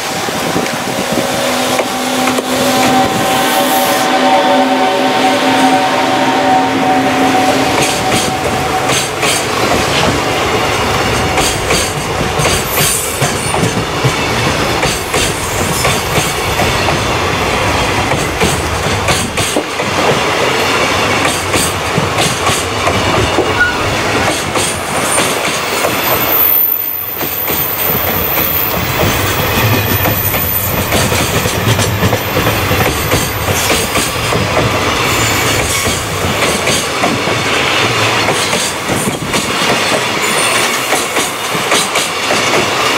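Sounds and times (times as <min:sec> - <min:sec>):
train wheels clacking: 0:00.0 - 0:04.3, 0:05.4 - 0:42.9
high wheel squeal: 0:01.0 - 0:09.2, 0:23.3 - 0:24.3.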